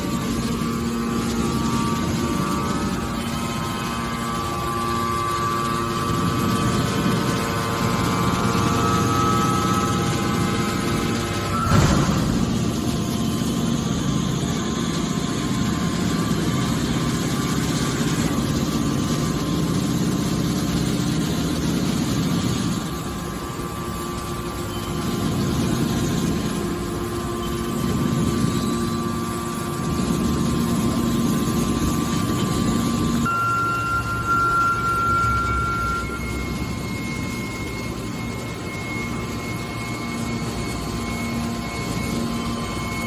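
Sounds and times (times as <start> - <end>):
hydraulic baler motor humming: 0.0 - 23.8.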